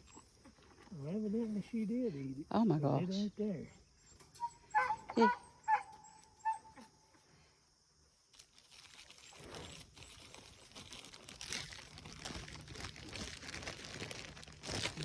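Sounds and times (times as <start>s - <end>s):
crinkling and crunching: 8.3s - 15.0s.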